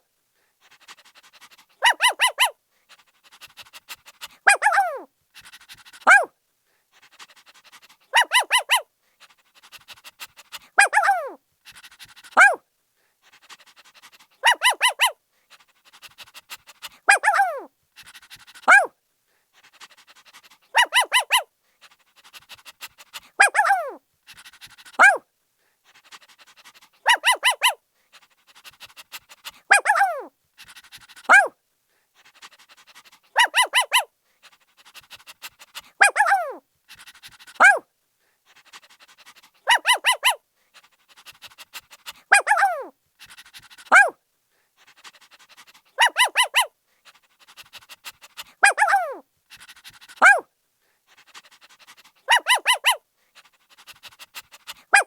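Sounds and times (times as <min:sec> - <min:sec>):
puppy panting: 0:00.6 - 0:06.3, 0:06.9 - 0:18.9, 0:19.5 - 0:55.0
puppy barking: 0:01.8 - 0:02.6, 0:04.4 - 0:05.1, 0:06.0 - 0:06.3, 0:08.1 - 0:08.8, 0:10.8 - 0:11.4, 0:12.4 - 0:12.6, 0:14.4 - 0:15.2, 0:17.1 - 0:17.7, 0:18.6 - 0:18.9, 0:20.7 - 0:21.5, 0:23.3 - 0:24.0, 0:25.0 - 0:25.2, 0:27.0 - 0:27.8, 0:29.7 - 0:30.3, 0:31.3 - 0:31.5, 0:33.3 - 0:34.1, 0:35.8 - 0:36.6, 0:37.6 - 0:37.8, 0:39.6 - 0:40.4, 0:42.2 - 0:42.9, 0:43.9 - 0:44.2, 0:46.0 - 0:46.7, 0:48.6 - 0:49.2, 0:50.2 - 0:50.4, 0:52.2 - 0:53.0.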